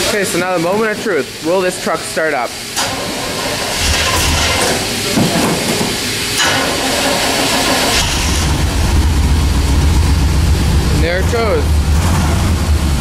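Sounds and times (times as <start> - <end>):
engine running: 2.6 - 13.0
engine cranking on starter: 2.7 - 4.9, 6.4 - 10.4.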